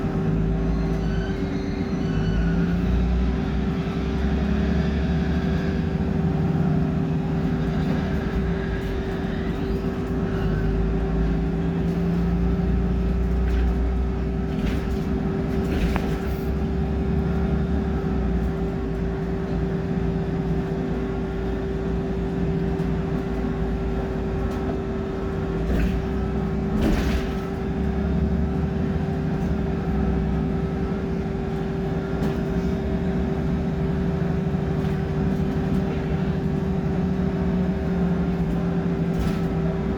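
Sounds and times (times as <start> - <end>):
bus diesel engine drone: 0.0 - 39.9.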